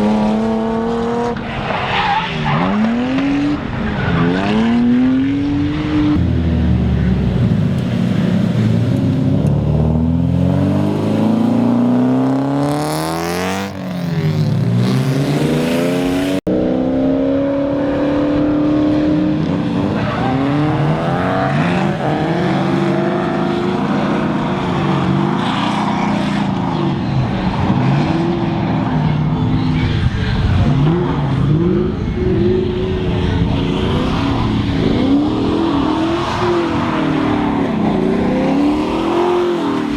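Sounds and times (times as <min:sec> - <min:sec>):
car engines revving: 0:00.0 - 0:39.9
car passing close: 0:03.1 - 0:16.5.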